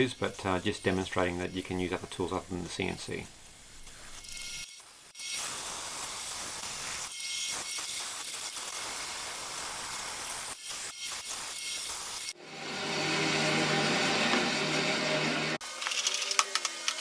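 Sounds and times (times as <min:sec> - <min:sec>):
bandsaw cutting wood: 0:04.1 - 0:17.0.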